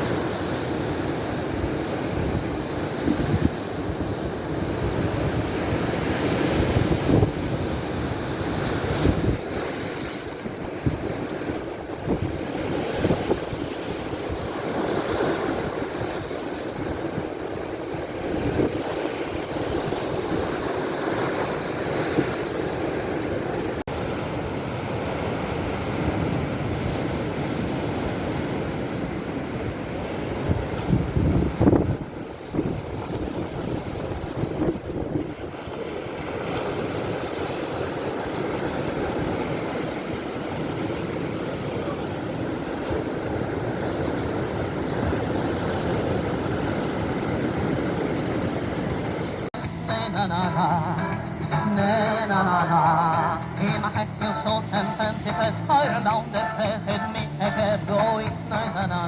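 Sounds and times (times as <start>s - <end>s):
wind buffeting microphone: 0.0s - 22.5s, 25.7s - 49.5s
surf washing on shore: 0.0s - 49.9s.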